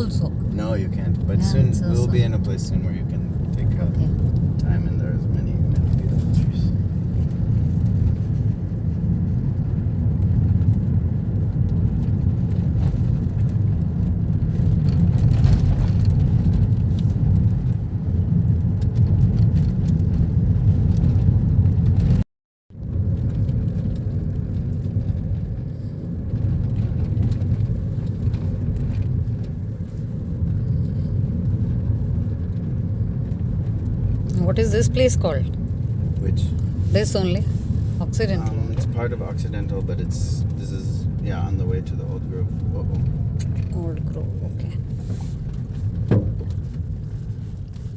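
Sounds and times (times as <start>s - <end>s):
car interior road rumble: 0.0s - 47.9s.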